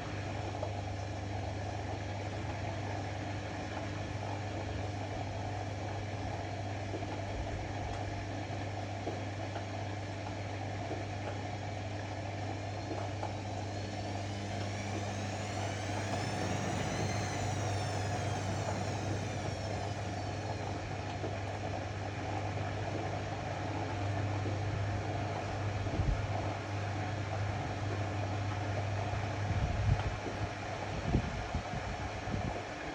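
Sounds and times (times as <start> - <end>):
washing machine motor hum: 12.6 - 22.1
drum motor whine: 12.6 - 22.3.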